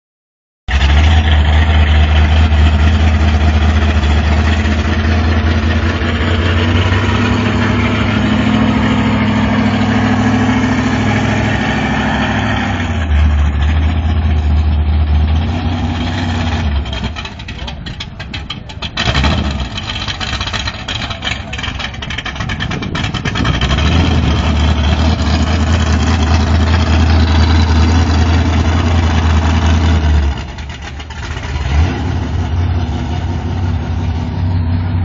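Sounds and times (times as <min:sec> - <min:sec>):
race car engine idling loudly: 0:00.7 - 0:11.0, 0:16.7 - 0:31.6.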